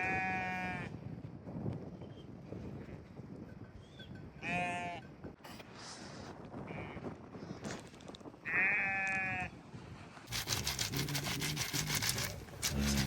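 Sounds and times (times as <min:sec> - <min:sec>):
sheep or goat bleating: 0:00.0 - 0:00.9, 0:04.4 - 0:05.0, 0:08.4 - 0:09.5.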